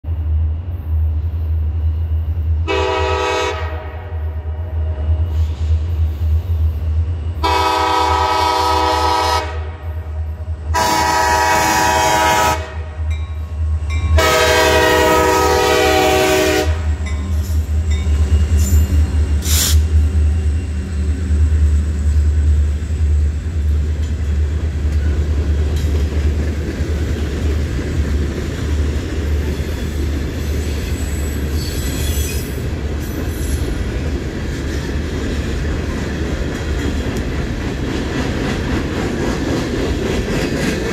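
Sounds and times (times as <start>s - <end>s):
locomotive air horn blasts: 2.7s - 5.4s, 7.4s - 10.1s, 10.7s - 13.1s, 14.2s - 17.0s
hopper cars rumbling and clattering: 16.9s - 31.6s.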